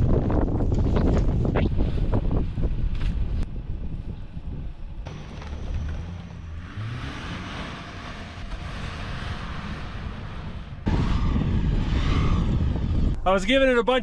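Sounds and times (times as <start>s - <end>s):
car engine revving: 5.1s - 13.2s.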